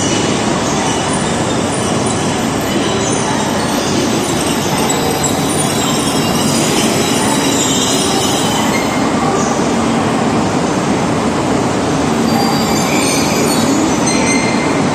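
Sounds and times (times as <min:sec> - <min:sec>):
train rumbling: 0:00.0 - 0:14.9
high-pitched wheel squeals: 0:00.8 - 0:09.2, 0:12.1 - 0:14.9.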